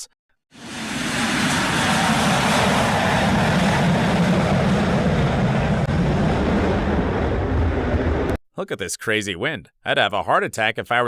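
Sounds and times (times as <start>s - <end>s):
aircraft engine roar: 0.5s - 8.4s
wind rushing over microphone: 0.6s - 8.4s.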